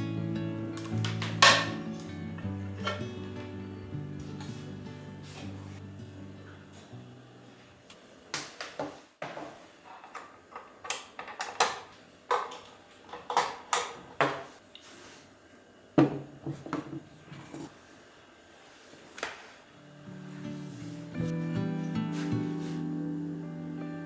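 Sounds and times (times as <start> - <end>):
faint background music: 0.0 - 7.8, 19.8 - 24.0.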